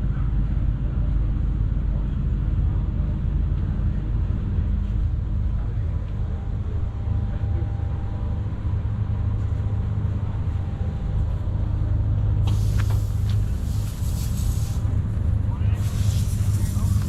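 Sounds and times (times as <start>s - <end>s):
low engine-like drone: 0.0s - 17.0s
loud hiss: 12.4s - 15.0s, 15.7s - 17.0s.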